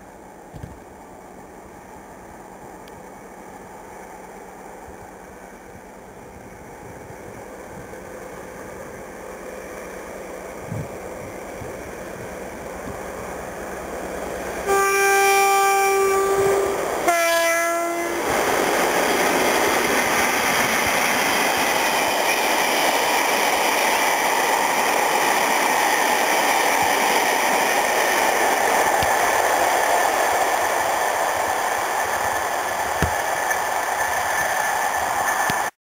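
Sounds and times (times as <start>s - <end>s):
train rushing past: 3.6s - 35.8s
locomotive two-tone horn: 14.6s - 18.4s.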